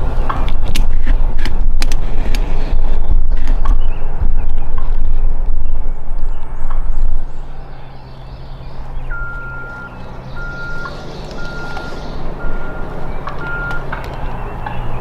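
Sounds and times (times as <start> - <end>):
engine rumbling: 0.0 - 15.0
electronic beeping: 9.1 - 13.9.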